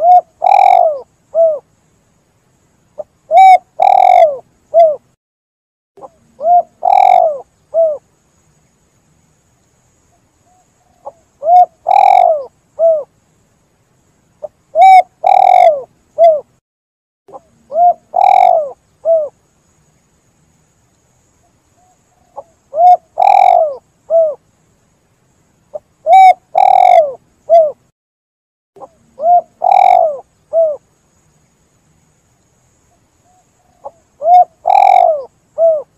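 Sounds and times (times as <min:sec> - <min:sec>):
dove cooing: 0:00.0 - 0:01.7, 0:03.0 - 0:05.1, 0:06.0 - 0:08.0, 0:10.5 - 0:13.1, 0:14.7 - 0:16.5, 0:17.3 - 0:19.4, 0:21.8 - 0:24.4, 0:25.7 - 0:27.8, 0:28.8 - 0:30.8, 0:33.3 - 0:35.9.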